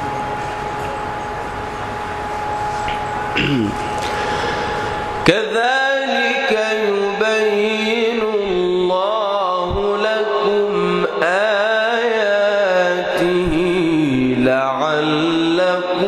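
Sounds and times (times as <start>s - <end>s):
man chanting melodically: 3.4s - 16.0s.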